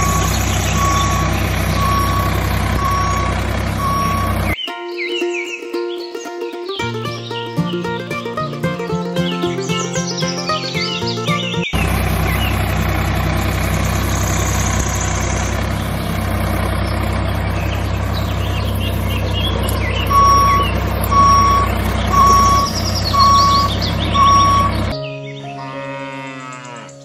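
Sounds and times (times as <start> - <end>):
reversing alarm beeping: 0.0 - 4.6, 18.9 - 25.0
tractor engine running: 0.0 - 4.6, 10.6 - 25.0
birds chirping faintly: 0.0 - 8.3, 8.9 - 27.0.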